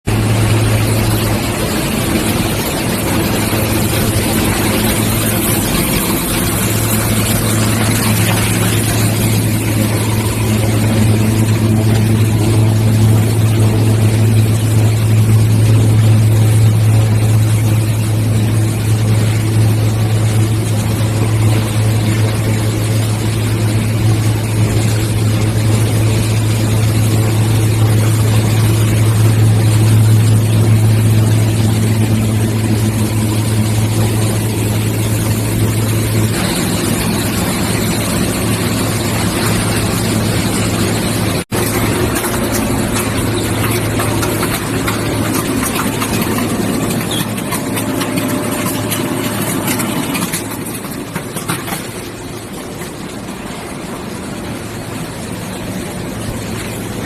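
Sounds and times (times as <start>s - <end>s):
washing machine humming: 0.0s - 57.0s.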